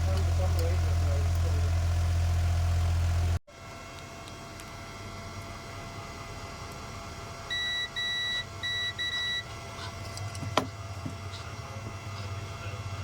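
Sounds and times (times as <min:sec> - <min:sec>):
electronic beeps: 0:07.5 - 0:09.5.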